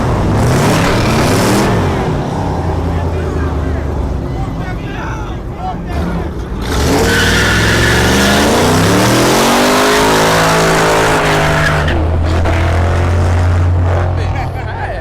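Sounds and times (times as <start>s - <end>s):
car engine revving: 0.0s - 4.3s, 5.8s - 14.8s
tyres squealing: 9.4s - 14.4s.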